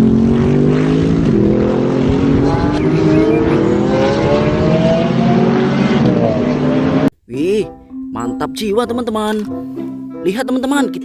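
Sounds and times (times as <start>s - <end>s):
race car engine accelerating: 0.0s - 7.1s.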